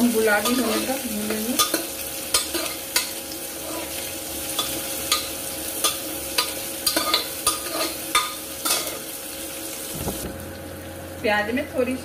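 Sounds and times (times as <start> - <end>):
onions sizzling in hot oil: 0.0 - 12.0
spoon scraping a pot: 0.4 - 4.0, 4.6 - 9.0.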